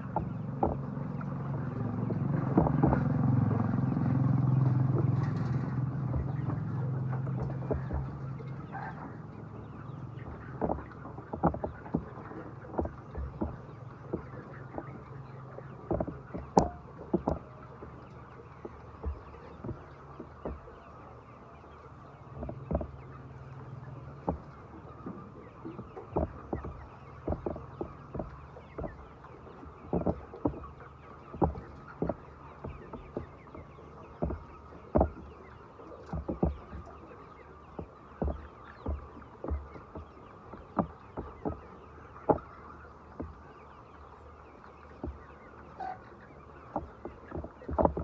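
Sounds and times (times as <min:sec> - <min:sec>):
chickens clucking: 0:00.0 - 0:48.0
dull knocks and thumps: 0:00.0 - 0:48.0
steady low hum: 0:00.0 - 0:48.0.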